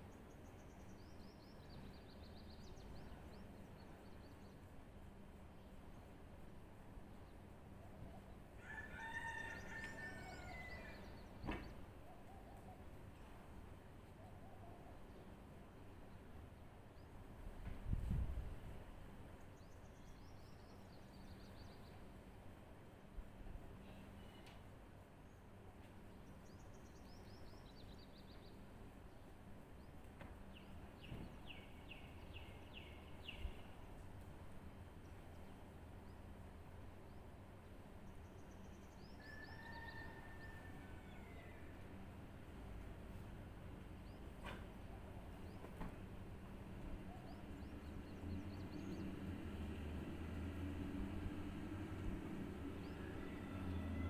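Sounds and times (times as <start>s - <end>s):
distant rooster crowing: 8.5s - 11.4s, 39.2s - 42.0s, 52.4s - 54.0s
small birds chirping: 43.8s - 46.1s.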